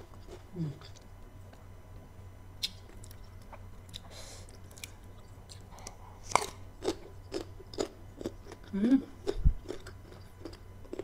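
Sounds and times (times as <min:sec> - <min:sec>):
crunchy chewing of mango: 0:02.6 - 0:11.0.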